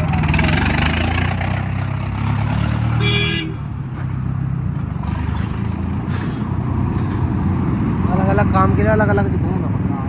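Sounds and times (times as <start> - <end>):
tractor diesel engine running: 0.0 - 2.5, 4.6 - 7.7
vehicle horn toot: 3.0 - 3.6.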